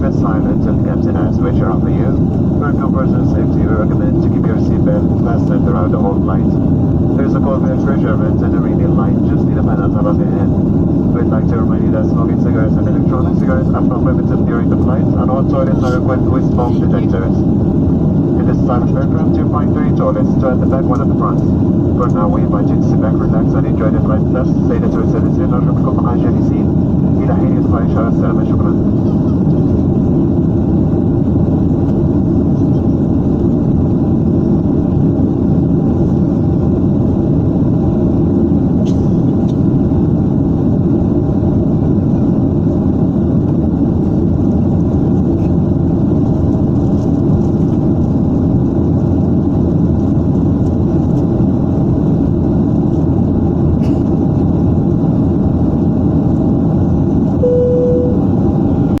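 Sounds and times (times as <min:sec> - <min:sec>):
airliner cabin roar: 0:00.0 - 0:59.0
short single tone: 0:57.4 - 0:58.4.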